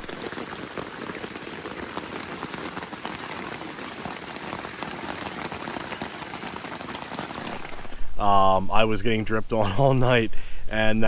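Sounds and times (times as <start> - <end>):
crackling rustle: 0.0 - 8.2.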